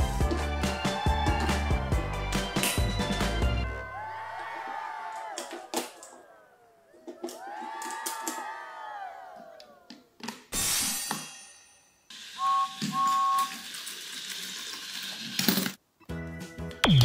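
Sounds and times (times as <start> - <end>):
toy train whirring: 12.1 - 15.8
two-note toy train whistle: 12.4 - 13.6.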